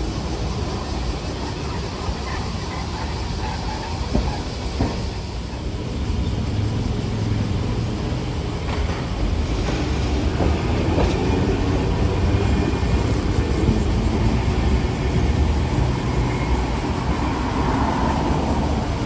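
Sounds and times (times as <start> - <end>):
tram wheels and motors rumbling: 0.0 - 19.0
wheels clacking over rail joints: 0.0 - 19.0.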